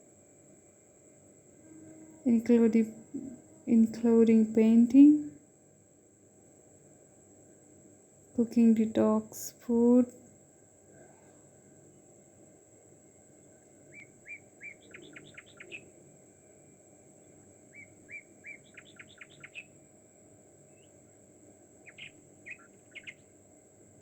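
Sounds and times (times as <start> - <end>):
songbird singing: 1.6 - 5.4, 13.3 - 24.0
bird short calls: 13.9 - 15.9, 17.7 - 19.7, 21.8 - 23.2.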